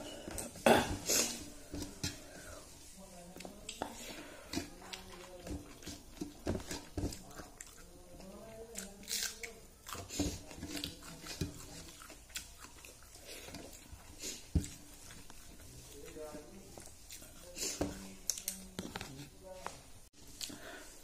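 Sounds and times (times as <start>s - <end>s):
fingers mixing rice on steel plate: 1.3s - 9.1s, 9.9s - 19.3s
person chewing with wet smacks: 3.4s - 19.2s.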